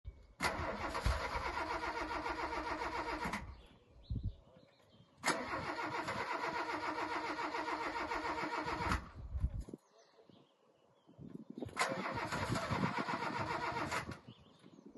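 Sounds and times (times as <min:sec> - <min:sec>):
car starter cranking: 0:00.4 - 0:03.5, 0:05.2 - 0:09.1, 0:11.8 - 0:14.2.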